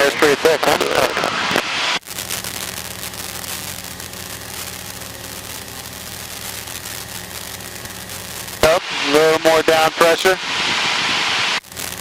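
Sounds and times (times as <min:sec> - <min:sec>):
crackly headset hiss: 0:00.0 - 0:12.0
plane piston engine humming: 0:02.2 - 0:09.5.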